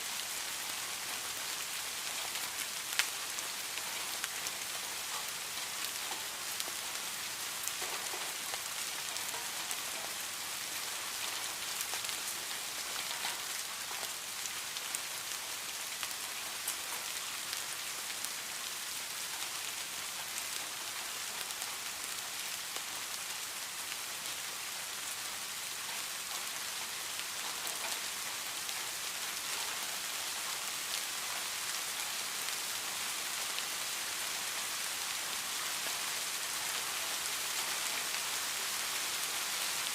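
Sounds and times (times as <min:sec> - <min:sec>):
heavy rain falling: 0:00.0 - 0:39.9
nearby raindrop ticks: 0:07.6 - 0:14.2, 0:25.8 - 0:34.4.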